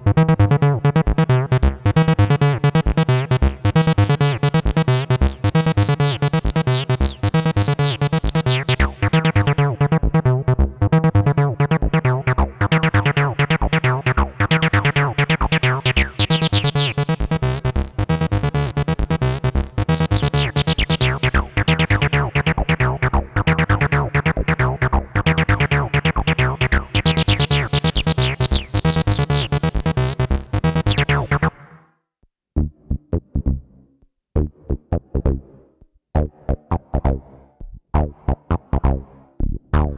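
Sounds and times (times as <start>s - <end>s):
acid synthesizer bassline: 1.4s - 31.8s.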